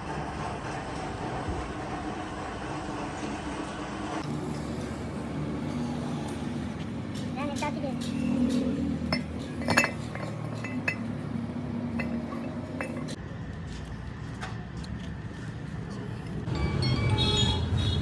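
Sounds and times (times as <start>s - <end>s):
metal tools clinking: 9.1s - 11.1s.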